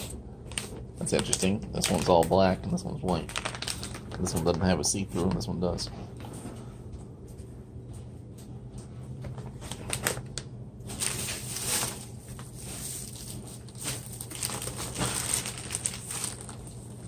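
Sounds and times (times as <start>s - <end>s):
plastic packaging crinkling and clicking: 0.4s - 5.5s, 9.3s - 17.0s.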